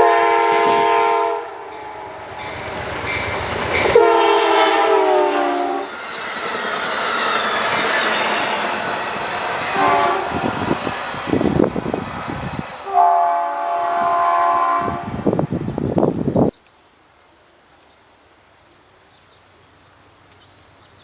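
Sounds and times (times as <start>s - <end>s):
train horn blasts: 0.0s - 6.0s, 9.6s - 10.8s, 12.8s - 15.3s
rushing rail noise: 0.0s - 18.5s.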